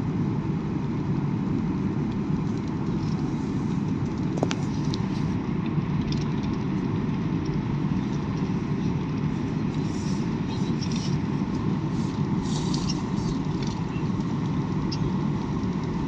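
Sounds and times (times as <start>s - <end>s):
airliner engines rumbling in cabin: 0.0s - 16.0s.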